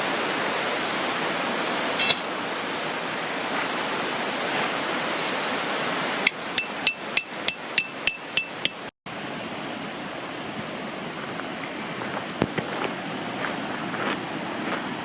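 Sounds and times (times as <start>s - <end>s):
river water rushing: 0.0s - 15.0s
hammer striking metal peg: 6.3s - 8.9s.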